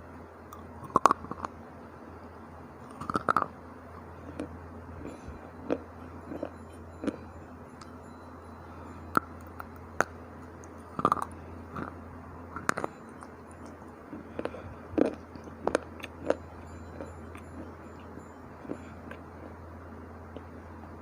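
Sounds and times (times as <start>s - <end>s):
chips crunching while chewed: 2.9s - 3.5s, 11.0s - 12.0s, 12.6s - 16.4s.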